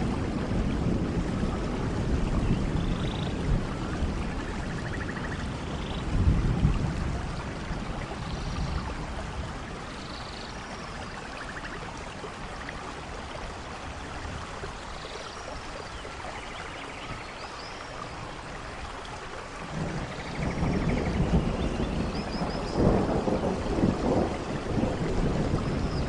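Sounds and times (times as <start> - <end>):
thunder rumbling: 0.0 - 9.8, 19.6 - 26.0
steady rain: 0.0 - 26.0.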